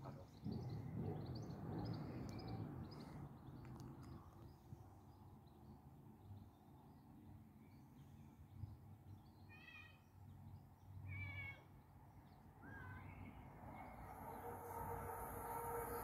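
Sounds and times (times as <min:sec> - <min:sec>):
approaching train hum: 0:00.0 - 0:04.9, 0:13.0 - 0:16.0
faint outdoor background: 0:00.0 - 0:16.0
brief gliding call: 0:13.7 - 0:16.0.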